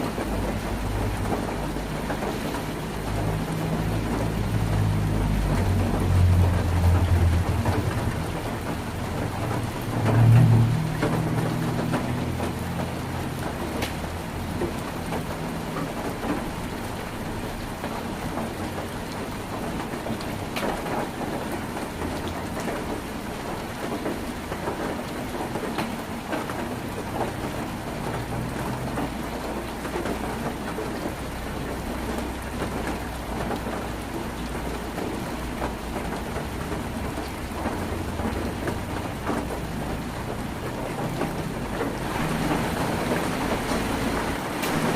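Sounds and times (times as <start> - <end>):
heavy rain on a tin roof: 0.0 - 44.9.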